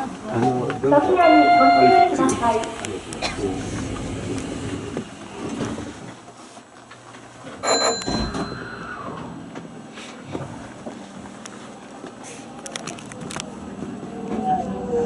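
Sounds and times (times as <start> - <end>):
train doors sliding shut: 1.2 - 6.3
loud door clunk: 7.7 - 8.6.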